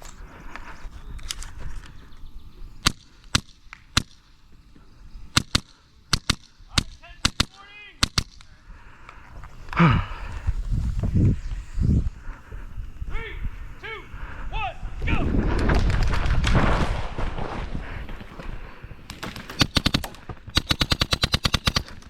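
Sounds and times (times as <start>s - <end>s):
airsoft gun shots: 2.8s - 4.2s, 5.3s - 8.5s, 19.1s - 22.0s
person speaking: 13.0s - 15.4s.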